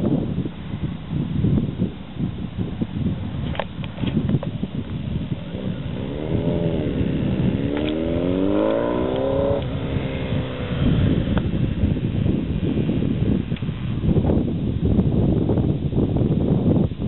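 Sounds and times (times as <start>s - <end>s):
motorcycle engine revving: 5.1s - 14.5s.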